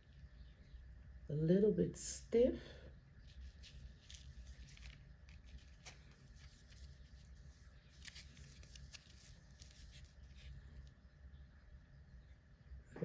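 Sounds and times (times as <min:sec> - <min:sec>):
faint rustling of packaging: 0:02.9 - 0:11.4.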